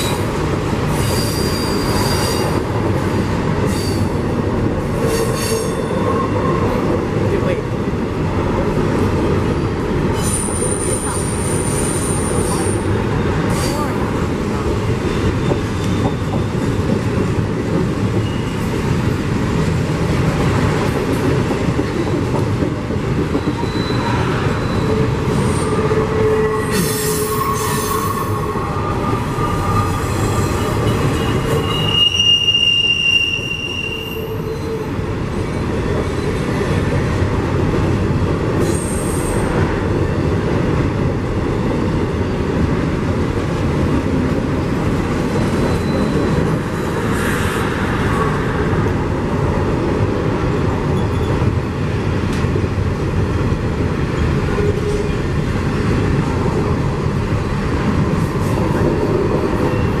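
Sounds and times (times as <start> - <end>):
train wheels rumbling on rail: 0.0 - 60.0
metal wheel squeals: 1.0 - 2.4, 23.4 - 34.8, 45.6 - 46.9.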